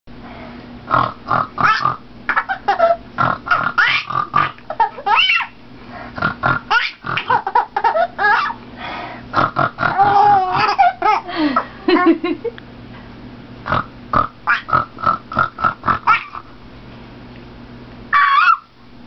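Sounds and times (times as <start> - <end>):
bird chuckling calls: 1.6 - 5.6, 15.9 - 16.5.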